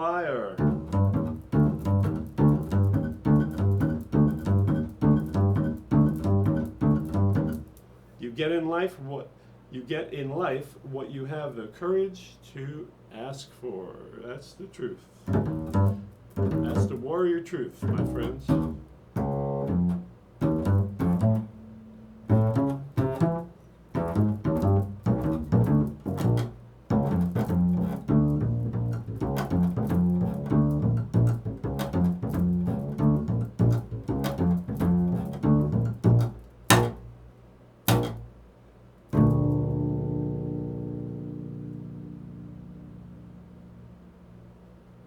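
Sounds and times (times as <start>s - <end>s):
plucked string instrument solo: 0.6s - 7.7s, 15.3s - 17.0s, 17.8s - 37.1s, 37.9s - 38.3s, 39.1s - 44.4s.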